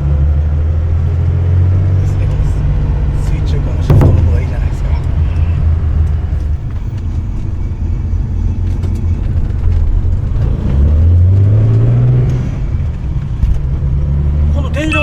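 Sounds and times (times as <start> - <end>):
car engine deep exhaust note: 3.9 - 6.0.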